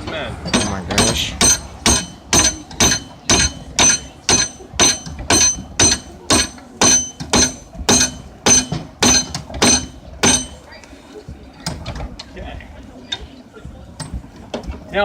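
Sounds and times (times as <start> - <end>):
hammer striking metal on anvil: 0.5 - 10.6.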